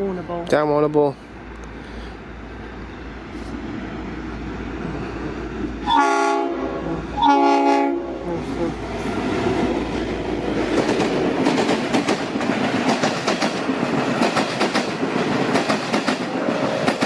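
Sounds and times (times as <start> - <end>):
train passing close by: 0.0 - 17.0
locomotive horn blast: 5.8 - 8.8
wheels clicking over rail joints: 10.5 - 17.0.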